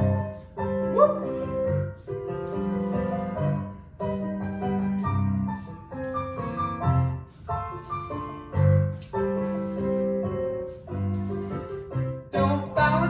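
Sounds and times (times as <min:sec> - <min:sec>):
jazz piano chords: 0:00.0 - 0:13.0.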